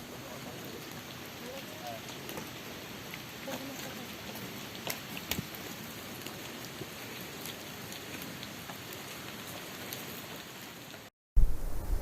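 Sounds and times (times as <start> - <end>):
light ticks and crackles: 0.0 - 11.1
steady hiss: 0.0 - 12.0.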